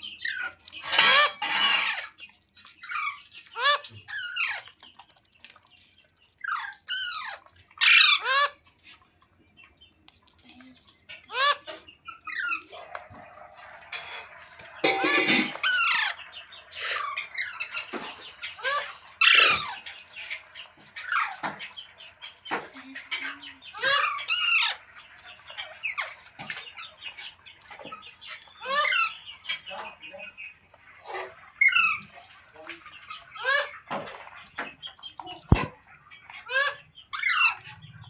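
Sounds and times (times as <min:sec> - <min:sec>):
parrot squawking: 0:00.2 - 0:02.1, 0:02.9 - 0:04.7, 0:06.4 - 0:08.6, 0:11.3 - 0:19.9, 0:23.7 - 0:24.8, 0:28.6 - 0:29.2, 0:33.2 - 0:33.8, 0:36.4 - 0:37.8.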